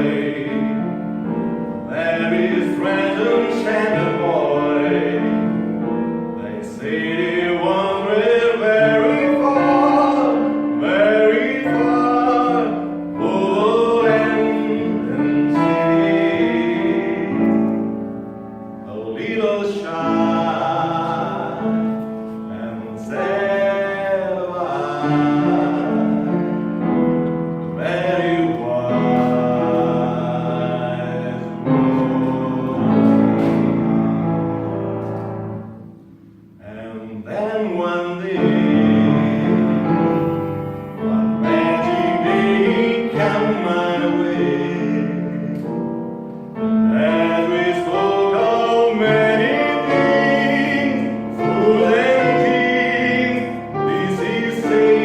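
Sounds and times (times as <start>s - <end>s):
person singing slow song: 0.0s - 34.0s
low piano chords: 0.0s - 55.0s.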